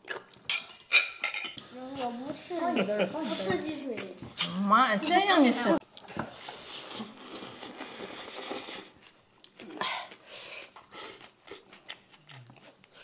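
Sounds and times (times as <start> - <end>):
chewing and smacking: 0.0 - 0.5, 9.0 - 13.0.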